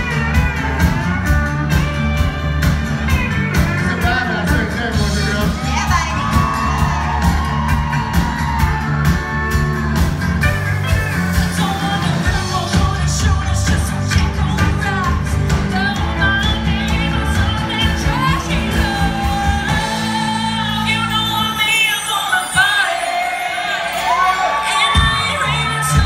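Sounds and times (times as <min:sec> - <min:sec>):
drum beat: 0:00.0 - 0:16.0
bass guitar: 0:00.0 - 0:22.2, 0:24.1 - 0:26.0
electric guitar: 0:00.0 - 0:22.8
person singing: 0:11.3 - 0:26.0.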